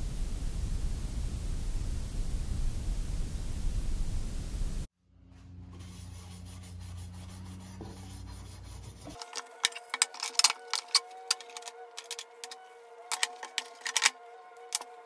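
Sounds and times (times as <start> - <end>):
rag rubbing metal parts: 8.7 - 15.0.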